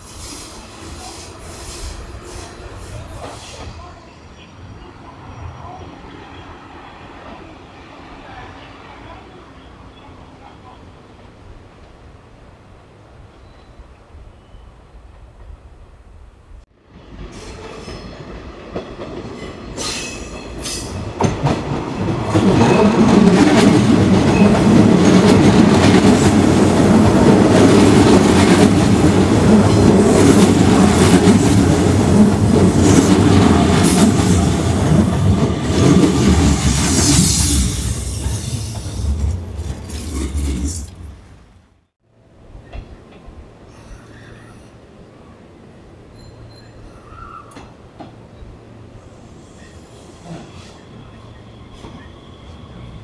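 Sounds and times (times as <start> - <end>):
electric train rumbling past: 0.0 - 53.0
high wheel squeal: 46.1 - 47.6.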